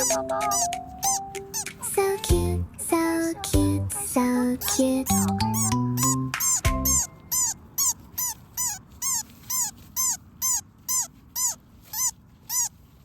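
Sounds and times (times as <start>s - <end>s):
music: 0.0s - 7.1s
baby animal squeaking: 0.0s - 13.0s.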